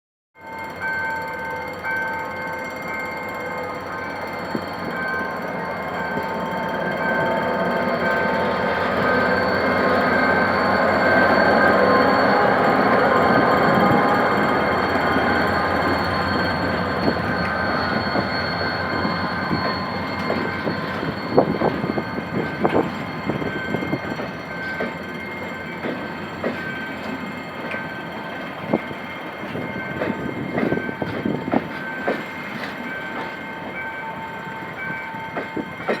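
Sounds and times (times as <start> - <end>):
diesel train rumble: 1.6 - 36.0
train wheels clacking: 7.0 - 36.0
wheel squeal: 8.4 - 27.9.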